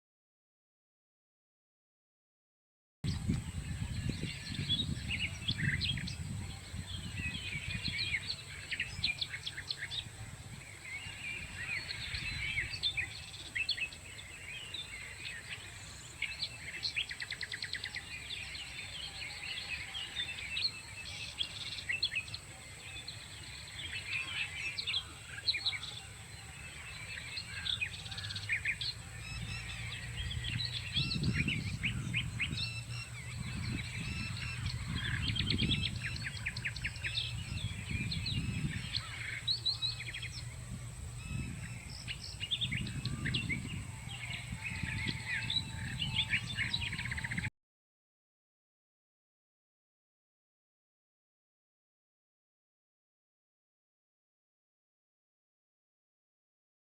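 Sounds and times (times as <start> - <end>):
small birds chirping and trilling: 3.1 - 47.5.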